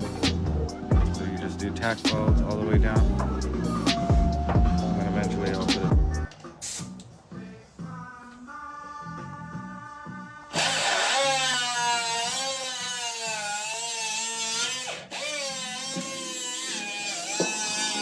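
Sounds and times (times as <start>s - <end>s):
background music: 0.0s - 11.4s
power drill whining: 10.5s - 18.0s.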